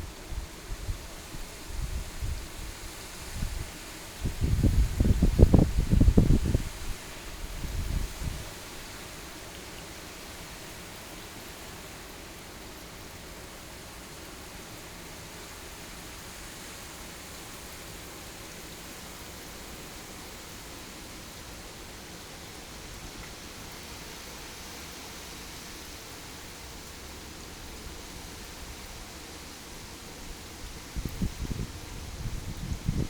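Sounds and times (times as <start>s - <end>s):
heavy rain hiss: 0.0s - 33.0s
wind buffeting microphone: 3.4s - 6.9s, 30.9s - 33.0s.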